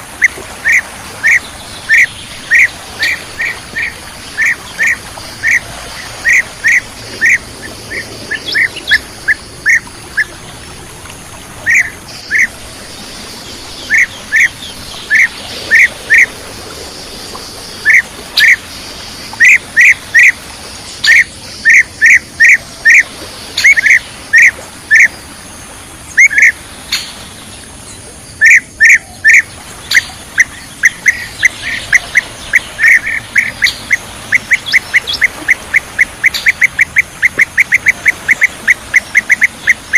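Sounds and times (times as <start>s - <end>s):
bird chirping calls: 0.2s - 10.4s, 11.6s - 12.6s, 13.5s - 16.3s, 27.9s - 39.9s.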